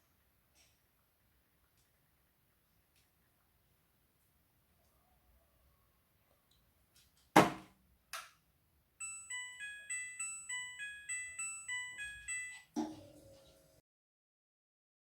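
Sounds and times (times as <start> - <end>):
washing machine beeping tune: 9.0 - 13.8.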